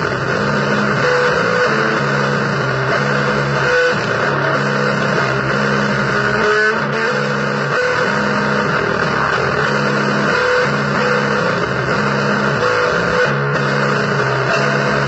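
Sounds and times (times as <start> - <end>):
distorted electric guitar blues riff: 0.0 - 15.0.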